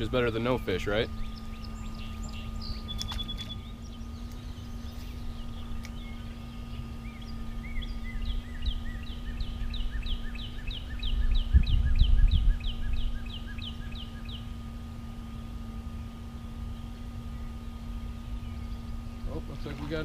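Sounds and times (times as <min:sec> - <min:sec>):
steady low hum: 0:00.0 - 0:20.0
songbird whistling: 0:00.8 - 0:14.6.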